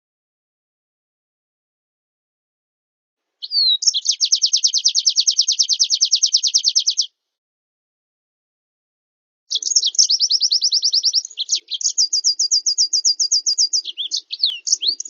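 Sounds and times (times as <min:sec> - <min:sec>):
songbird whistle and trill: 0:03.4 - 0:07.1, 0:09.5 - 0:15.0.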